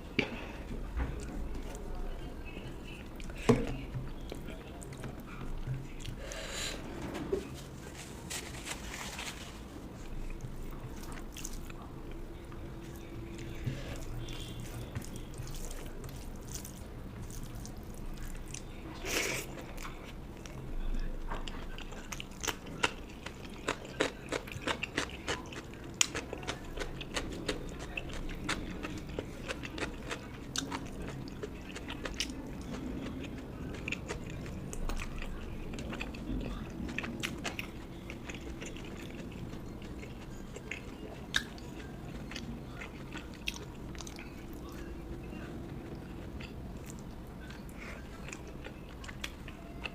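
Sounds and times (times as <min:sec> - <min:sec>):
person chewing crunchy food: 0:12.8 - 0:20.6, 0:21.5 - 0:44.9, 0:45.5 - 0:49.9.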